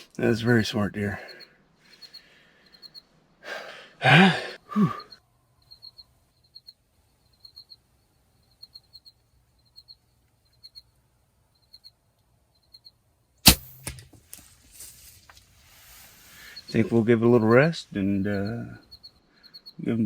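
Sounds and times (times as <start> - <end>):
bird chirping faintly: 0.0 - 3.2, 4.8 - 13.0, 15.8 - 20.0
bow shot crack: 13.4 - 15.5
rustling noise: 14.0 - 17.0.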